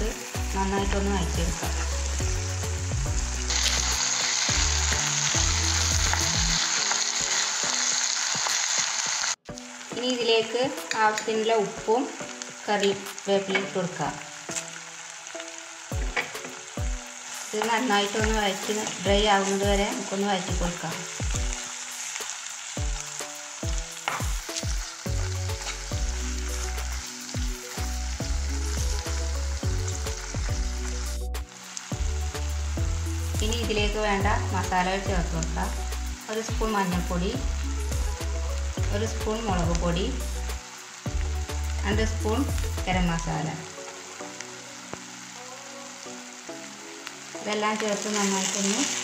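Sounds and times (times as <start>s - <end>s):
vegetables sizzling in hot oil: 0.0s - 49.0s
background music with thumps: 15.9s - 17.1s, 20.5s - 21.6s, 23.6s - 26.2s.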